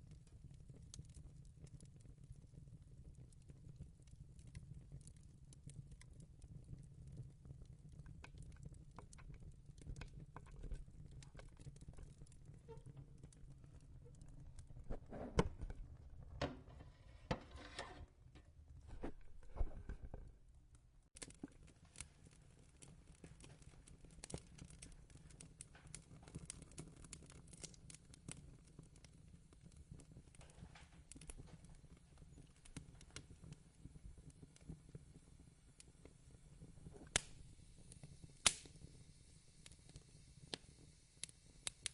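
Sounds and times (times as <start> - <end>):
fireplace crackling: 2.8 - 41.9
knocks and rustles: 16.4 - 20.4.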